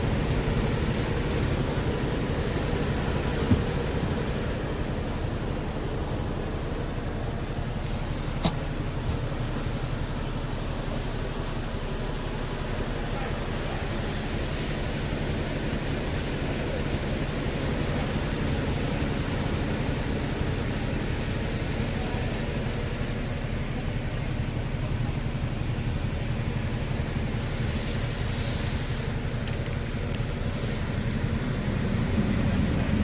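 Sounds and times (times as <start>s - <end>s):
diesel engine idling: 0.0s - 33.0s
sharp clicks: 29.4s - 30.3s.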